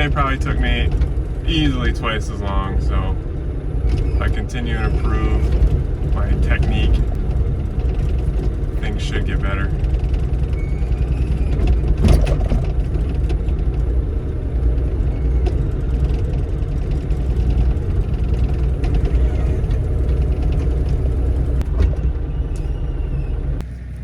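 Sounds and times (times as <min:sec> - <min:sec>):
excavator diesel engine droning: 0:00.0 - 0:24.0.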